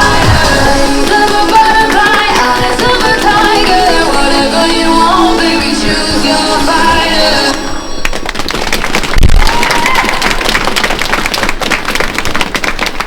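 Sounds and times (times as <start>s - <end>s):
audience applause: 0.0s - 5.5s, 8.0s - 13.0s
program music: 0.0s - 8.4s.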